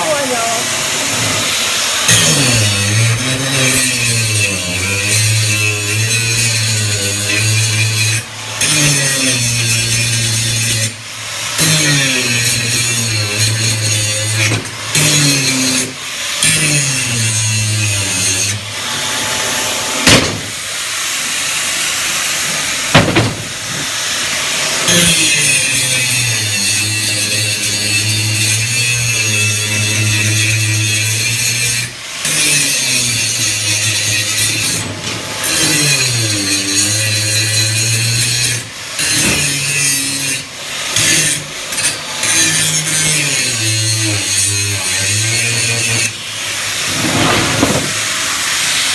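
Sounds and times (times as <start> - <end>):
angle grinder grinding steel: 0.0 - 48.9
sharp knocks: 20.0 - 20.6, 22.9 - 23.9.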